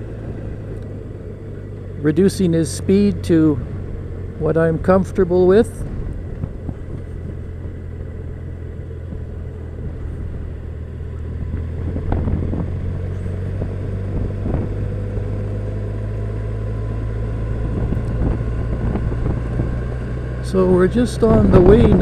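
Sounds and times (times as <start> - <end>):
motorcycle engine cruising: 0.0 - 22.0
road and wind noise: 0.0 - 22.0.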